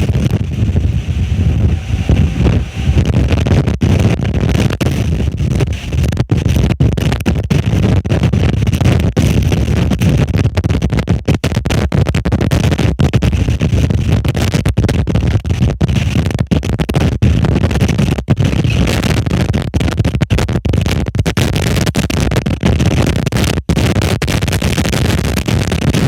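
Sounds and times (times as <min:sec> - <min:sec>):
storm wind buffeting microphone: 0:00.0 - 0:11.0.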